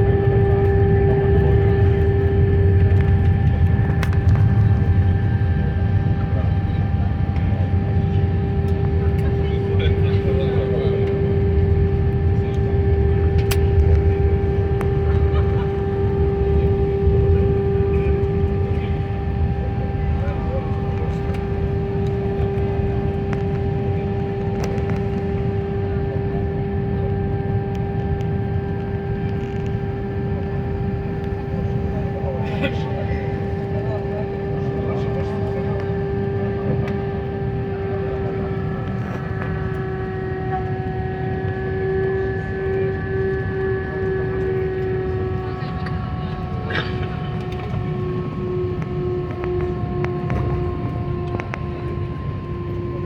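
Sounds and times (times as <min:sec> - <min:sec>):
airliner cabin engine rumble: 0:00.0 - 0:53.0
constant droning tone: 0:00.0 - 0:53.0.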